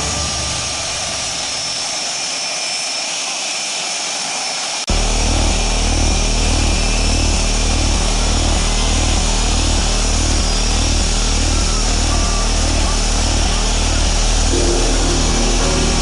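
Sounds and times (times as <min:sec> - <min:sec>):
aircraft engine rushing: 0:00.0 - 0:16.0
low pulsing engine drone: 0:04.9 - 0:16.0.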